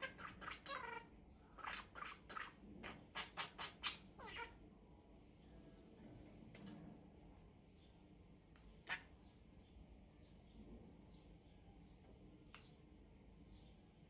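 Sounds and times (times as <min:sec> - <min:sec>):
budgerigar chirping: 0:00.0 - 0:04.6.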